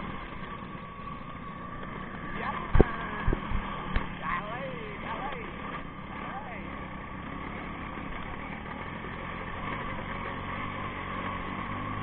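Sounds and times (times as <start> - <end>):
motorcycle engine running: 0.0 - 12.0
road and wind noise: 0.0 - 12.0.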